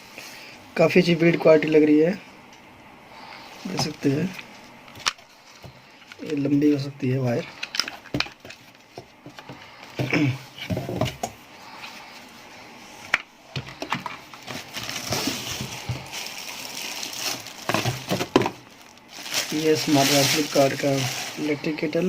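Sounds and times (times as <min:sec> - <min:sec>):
rustling: 0:13.7 - 0:21.7.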